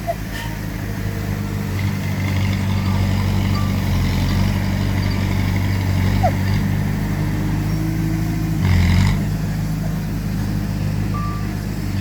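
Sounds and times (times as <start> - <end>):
diesel earthmoving machinery running: 0.0 - 12.0
short beep: 11.1 - 11.5.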